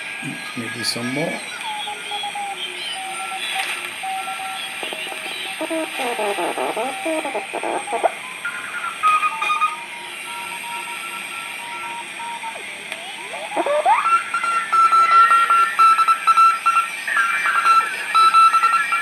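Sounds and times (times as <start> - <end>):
radio band hiss: 0.0 - 19.0
garbled warbling radio voice: 0.2 - 1.5
morse code tones: 0.4 - 19.0.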